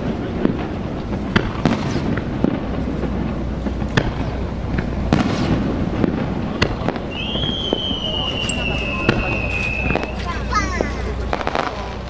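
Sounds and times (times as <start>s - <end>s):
background noise: 0.0s - 12.0s
fireworks shells bursting: 0.0s - 12.0s.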